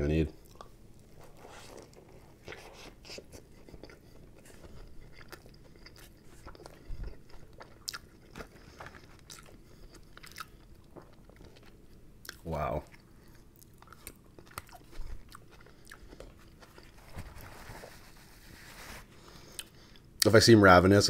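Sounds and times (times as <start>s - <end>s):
biting and chewing: 1.7s - 17.1s.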